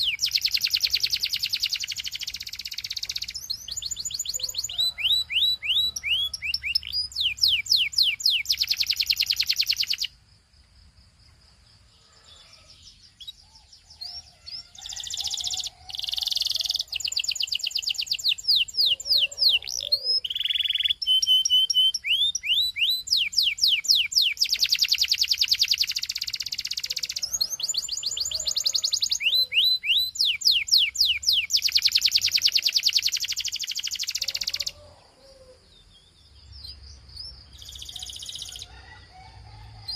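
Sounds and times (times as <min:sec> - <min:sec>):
canary singing trills: 0:00.0 - 0:10.2, 0:11.9 - 0:39.1.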